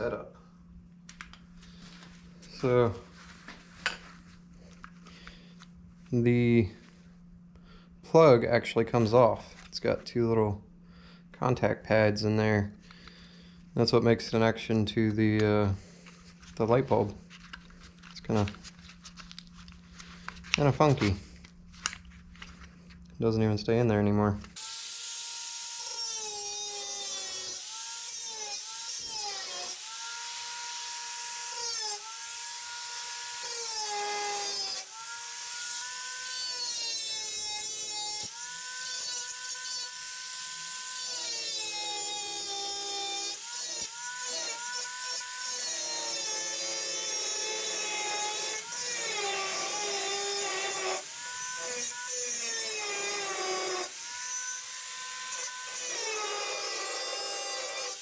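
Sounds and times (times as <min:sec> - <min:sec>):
power tool cutting sheet metal: 0:24.6 - 0:58.0.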